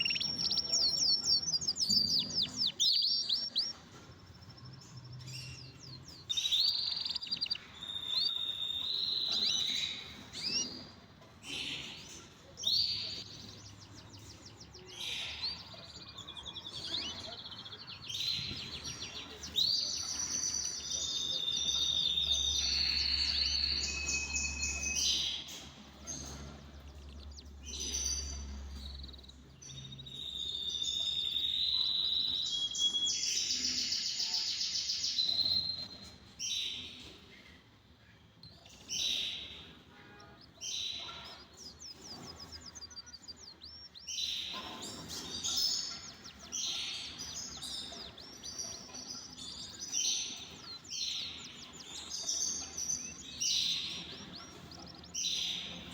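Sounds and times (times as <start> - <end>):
canaries singing: 0.0 - 55.9.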